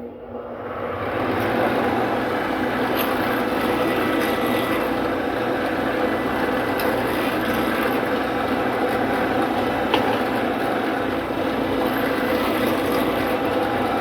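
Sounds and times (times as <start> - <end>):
drill press drilling into wood: 2.8 - 14.0.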